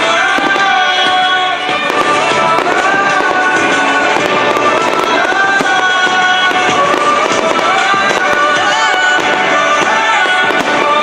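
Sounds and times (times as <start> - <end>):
fireworks cracking and banging: 0.0 - 11.0
loud music with sustained tones: 0.0 - 11.0.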